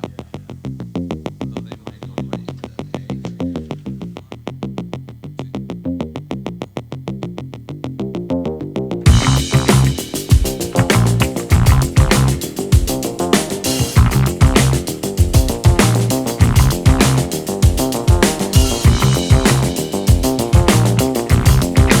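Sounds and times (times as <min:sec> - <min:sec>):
heavy bass and drums: 0:09.0 - 0:22.0
pulsing synthesizer: 0:09.1 - 0:22.0.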